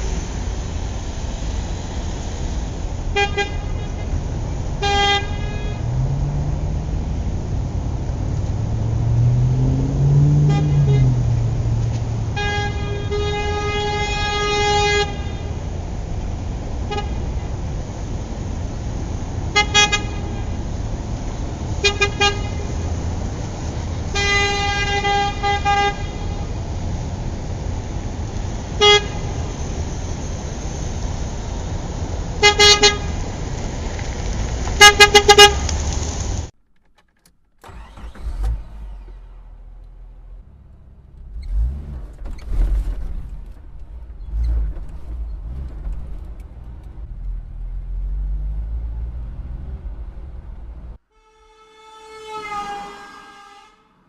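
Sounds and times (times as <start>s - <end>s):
traffic noise: 0.0s - 54.0s
vehicle horn honking: 4.8s - 5.9s, 10.4s - 11.2s, 12.3s - 15.6s, 19.5s - 20.5s, 21.8s - 22.7s, 24.1s - 26.4s, 28.8s - 29.3s, 32.4s - 33.2s, 34.8s - 35.6s, 51.1s - 54.0s.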